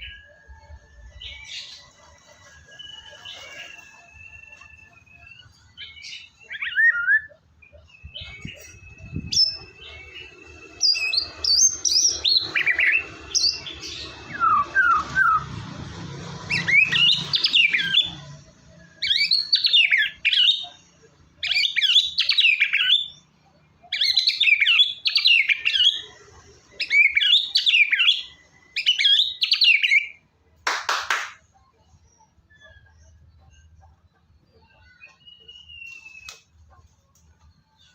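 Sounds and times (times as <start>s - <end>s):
bird singing whistled phrases: 2.8s - 10.1s, 34.9s - 36.5s.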